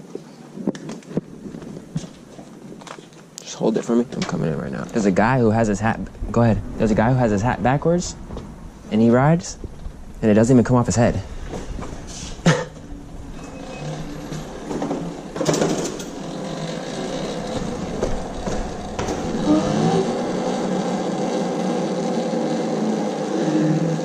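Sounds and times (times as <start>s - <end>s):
motor vehicle running: 5.0s - 24.0s.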